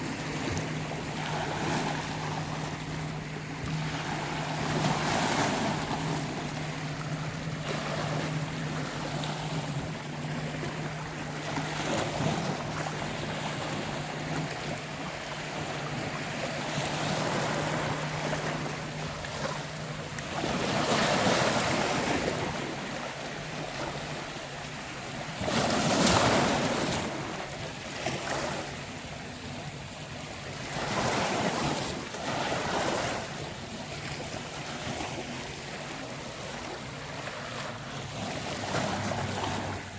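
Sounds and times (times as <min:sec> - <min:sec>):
steady low hum: 0:00.0 - 0:25.5
sea waves washing onto beach: 0:00.0 - 0:39.9.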